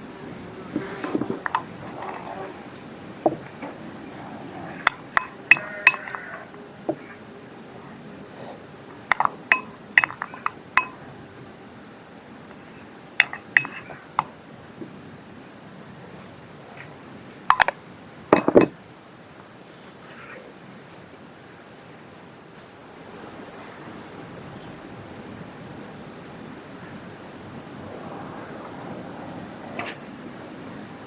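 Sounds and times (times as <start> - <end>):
steady high hiss: 0.0 - 31.0
glass or tableware clinking: 0.8 - 2.3, 4.9 - 6.4, 9.1 - 11.0, 13.2 - 14.3, 17.5 - 17.8, 18.4 - 18.8.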